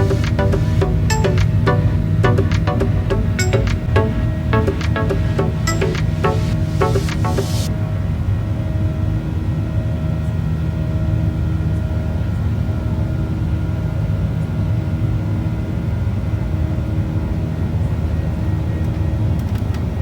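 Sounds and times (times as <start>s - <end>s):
jet engine drone in cabin: 0.0s - 7.9s.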